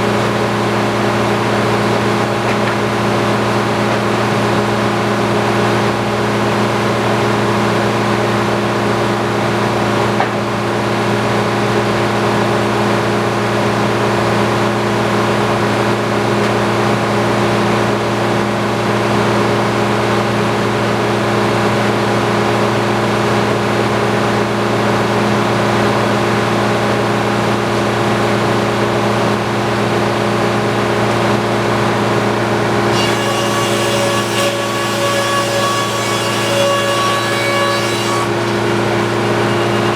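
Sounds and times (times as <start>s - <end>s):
sawmill humming: 0.0s - 39.9s
saw ringing cutting log: 32.9s - 39.9s.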